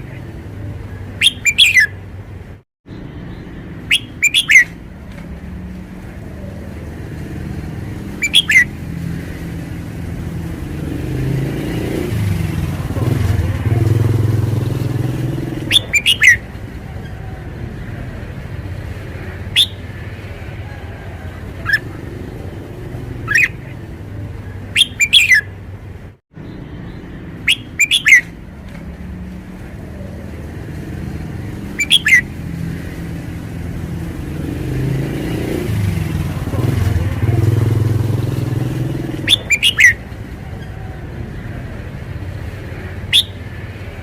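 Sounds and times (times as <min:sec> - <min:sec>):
bird chirps and whistles: 0:01.2 - 0:02.0, 0:03.8 - 0:04.8, 0:08.2 - 0:08.8, 0:15.6 - 0:16.4, 0:19.5 - 0:19.8, 0:23.2 - 0:23.7, 0:24.8 - 0:25.5, 0:27.4 - 0:28.4, 0:31.7 - 0:32.3, 0:39.2 - 0:40.1, 0:43.1 - 0:43.4.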